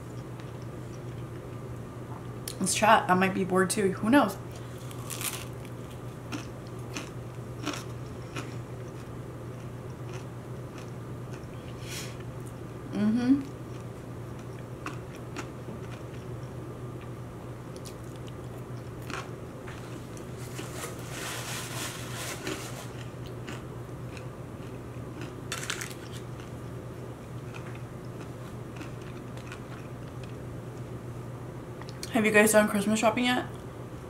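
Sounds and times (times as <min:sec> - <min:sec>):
crunchy fried food chewing: 0:04.6 - 0:12.6, 0:13.6 - 0:17.1, 0:17.7 - 0:30.9.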